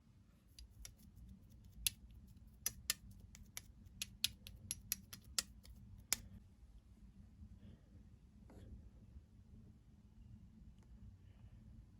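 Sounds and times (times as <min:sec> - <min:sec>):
shaving foam clicking and popping: 0:00.6 - 0:06.2.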